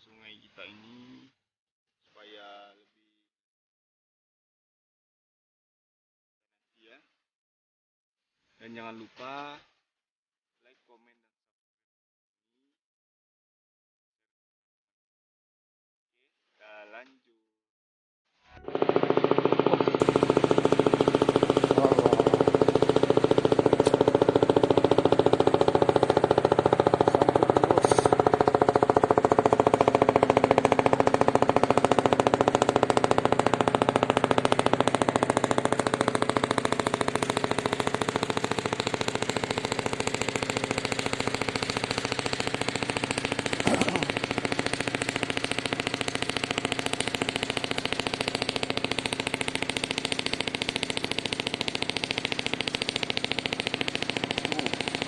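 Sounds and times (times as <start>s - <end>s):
small engine pulsing: 18.6s - 55.0s.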